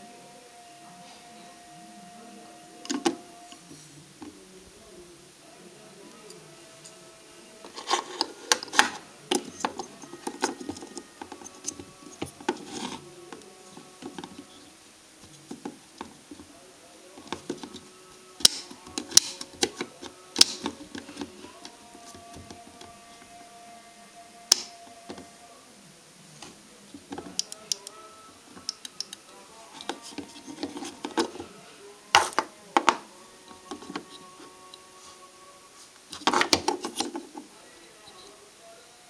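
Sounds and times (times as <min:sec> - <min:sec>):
faint steady tones: 0:00.0 - 0:39.0
small hard parts clicking: 0:07.7 - 0:14.5, 0:17.2 - 0:22.9, 0:24.5 - 0:25.2.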